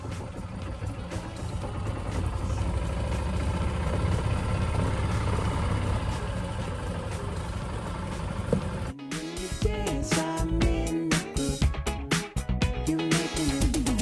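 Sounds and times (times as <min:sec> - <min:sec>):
golf cart running: 0:00.0 - 0:09.0.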